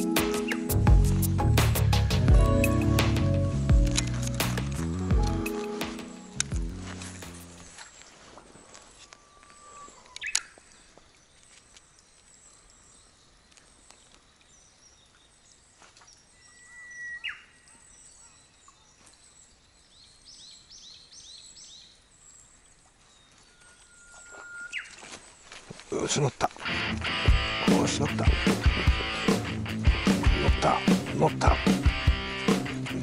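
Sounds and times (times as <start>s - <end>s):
bird chirps: 7.5s - 25.8s
whistled bird call: 16.4s - 17.6s, 23.5s - 25.0s.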